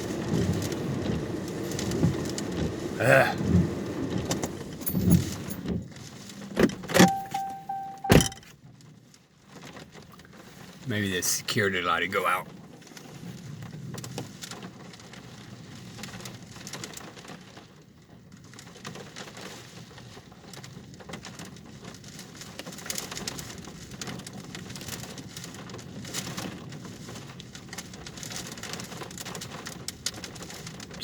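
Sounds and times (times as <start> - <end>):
rain pattering on a car: 0.0 - 6.9, 8.6 - 31.0.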